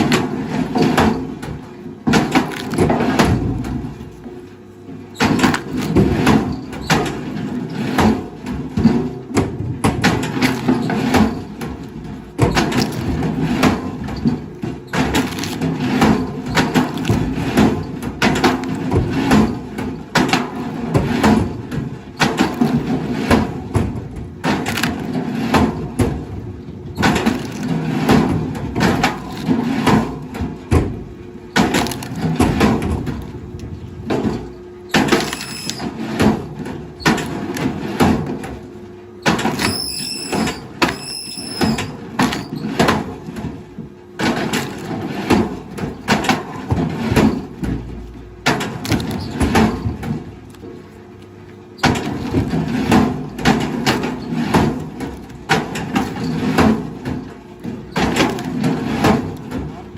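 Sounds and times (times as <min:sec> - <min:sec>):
wood cracking and splintering: 0:02.1 - 0:03.6, 0:12.5 - 0:14.0, 0:15.0 - 0:19.1, 0:31.6 - 0:33.4.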